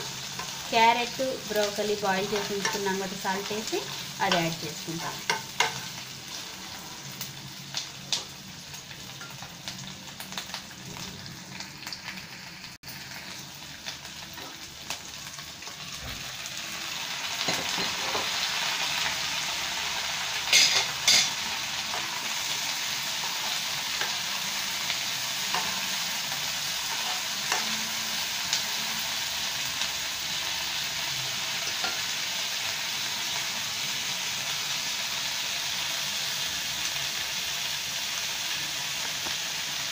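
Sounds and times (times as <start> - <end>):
food sizzling in oil: 0.0 - 39.9
metal spoon scraping a pan: 1.6 - 7.1, 20.5 - 22.2, 25.4 - 28.0.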